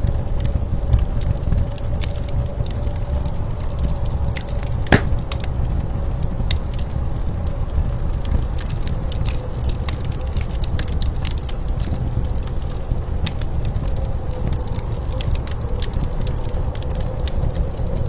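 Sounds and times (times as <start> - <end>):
wood fire crackling: 4.9 - 5.5
loud sharp crack: 5.0 - 5.5.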